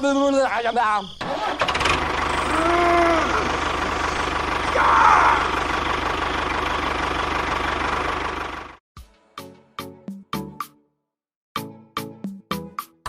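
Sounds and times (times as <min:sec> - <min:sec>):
tractor engine idling with knock: 0:01.6 - 0:04.7, 0:05.4 - 0:08.8.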